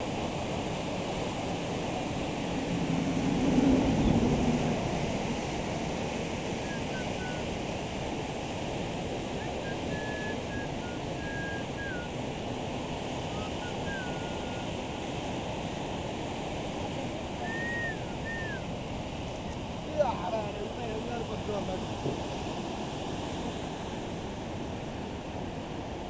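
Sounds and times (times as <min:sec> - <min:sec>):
river rushing: 0:00.0 - 0:26.0
thin whistling notes: 0:06.6 - 0:07.6, 0:09.4 - 0:12.2, 0:13.3 - 0:14.7, 0:17.4 - 0:18.7.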